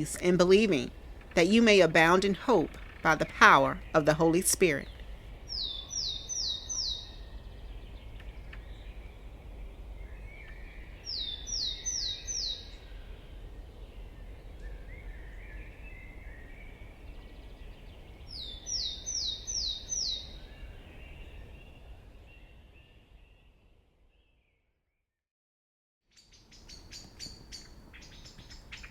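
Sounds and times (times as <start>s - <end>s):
low wind rumble: 0.0s - 24.3s, 26.3s - 28.9s
faint bird chirps: 2.6s - 24.6s.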